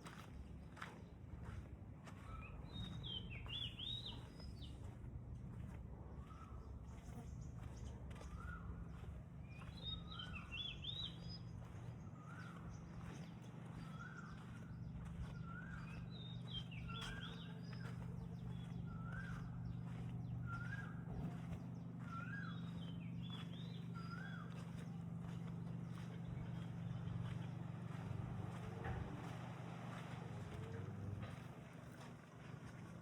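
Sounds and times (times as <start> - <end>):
steady low hum: 0.0 - 33.0
bird calling: 8.2 - 28.9
bird twittering: 9.6 - 28.0.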